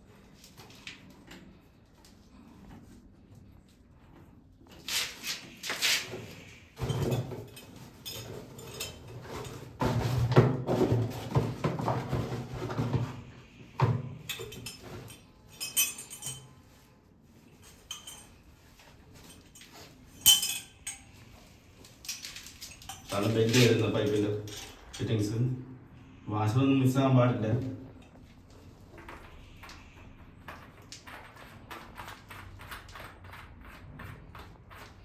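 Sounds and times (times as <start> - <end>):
metal fittings clinking: 4.8 - 9.6, 14.2 - 16.8, 17.4 - 25.1.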